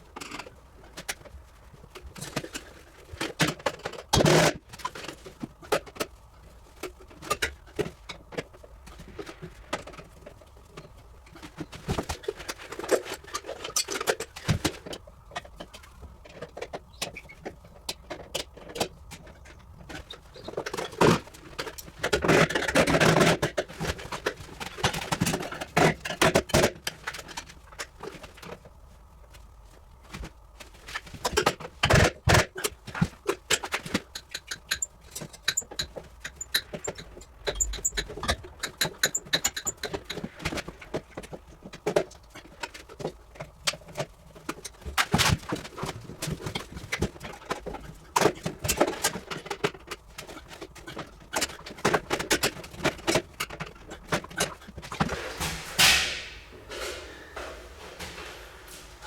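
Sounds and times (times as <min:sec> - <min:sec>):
hand tools clinking and scraping: 0:33.4 - 0:59.0.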